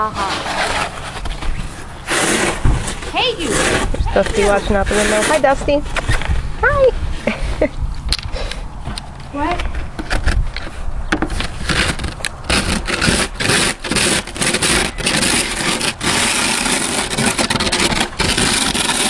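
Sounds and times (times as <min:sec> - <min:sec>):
snow shovel scraping snow: 0:02.0 - 0:05.9, 0:11.6 - 0:19.0.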